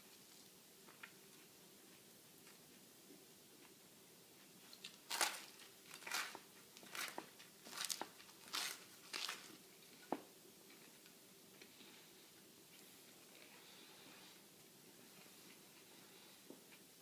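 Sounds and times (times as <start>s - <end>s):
crunchy chewing of sandwich: 4.7s - 9.6s.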